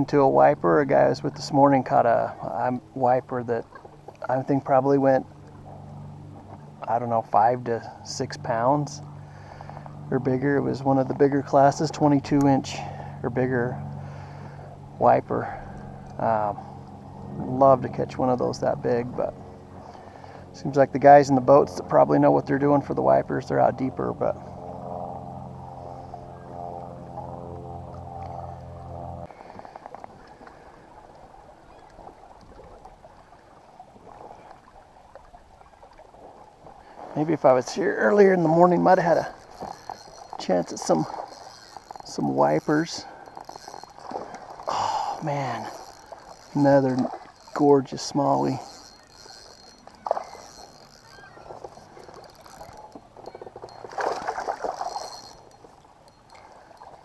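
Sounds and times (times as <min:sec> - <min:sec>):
steady low hum: 0:00.0 - 0:57.0
water sloshing against kayak hull: 0:29.2 - 0:57.0
fish thrashing and splashing: 0:29.3 - 0:57.0.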